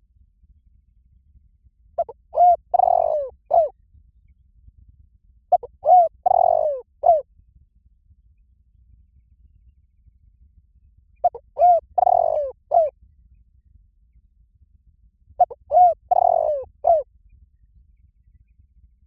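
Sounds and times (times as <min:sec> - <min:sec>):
dove cooing: 0:02.0 - 0:03.7, 0:05.5 - 0:07.2, 0:11.2 - 0:12.9, 0:15.4 - 0:17.0.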